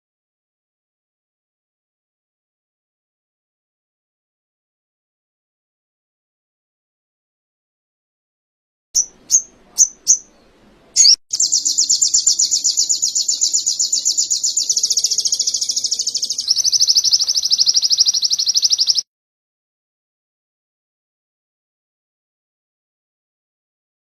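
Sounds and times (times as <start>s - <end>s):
songbird chirps and trill: 9.0s - 19.1s.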